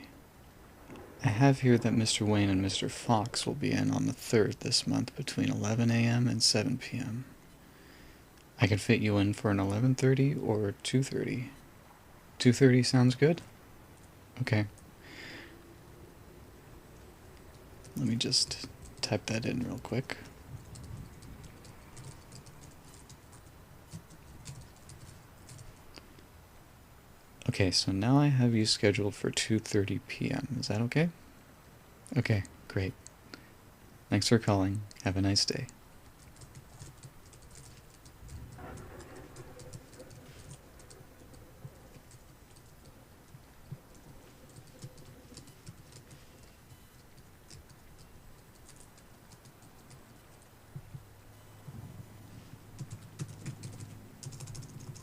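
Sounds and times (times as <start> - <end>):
background rain hiss: 0.0 - 55.0
keyboard typing: 17.5 - 25.8, 36.2 - 51.0, 52.8 - 55.0.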